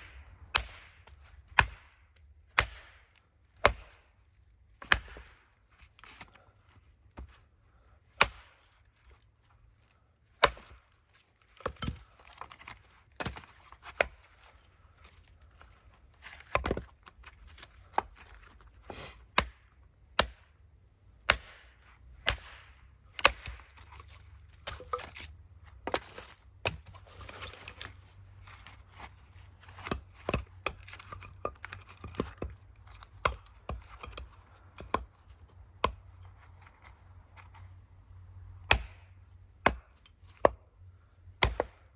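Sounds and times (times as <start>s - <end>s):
wood splitting crack: 0.0s - 4.1s, 4.8s - 5.4s, 8.1s - 8.9s, 10.3s - 10.9s, 21.3s - 28.0s, 38.6s - 40.6s, 41.4s - 41.9s
axe chopping wood: 0.0s - 4.2s, 4.8s - 5.4s, 8.1s - 8.8s, 10.3s - 10.9s, 11.6s - 14.2s, 16.3s - 17.0s, 19.2s - 20.5s, 21.2s - 27.8s, 29.7s - 36.2s, 38.6s - 40.6s, 41.3s - 41.9s.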